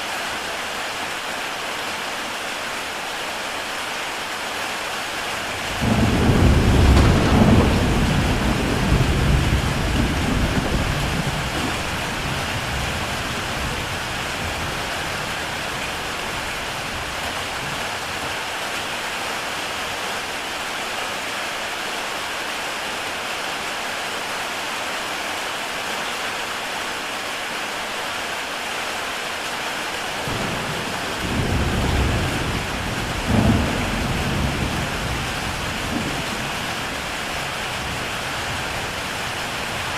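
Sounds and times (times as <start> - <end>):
heavy rain on a tile roof: 0.0 - 39.9
thunder rumbling: 5.6 - 18.3, 30.2 - 39.9.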